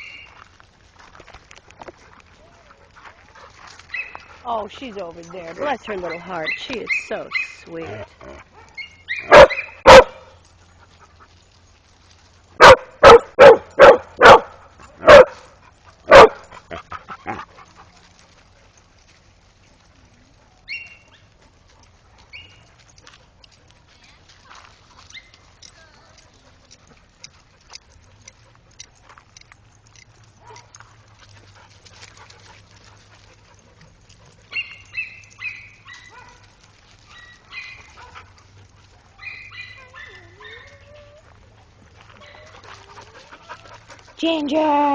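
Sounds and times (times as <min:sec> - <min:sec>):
dogs barking high-pitched: 0:05.6 - 0:10.4, 0:12.6 - 0:16.5, 0:30.3 - 0:30.8, 0:34.4 - 0:38.4, 0:39.2 - 0:41.2, 0:42.2 - 0:42.8
dog barking: 0:09.2 - 0:10.3, 0:12.6 - 0:15.4, 0:16.1 - 0:16.4, 0:35.4 - 0:36.4.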